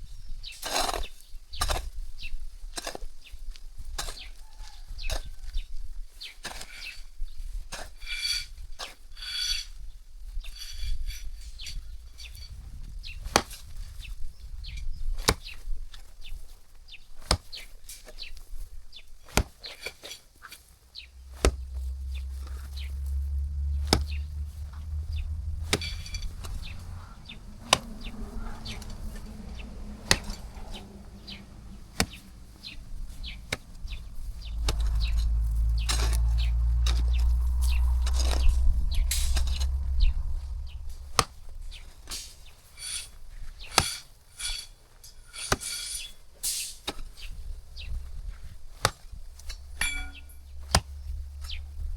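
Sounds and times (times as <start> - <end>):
hoe blade chopping into ground: 30.0 - 31.4, 32.0 - 34.0, 41.2 - 50.9.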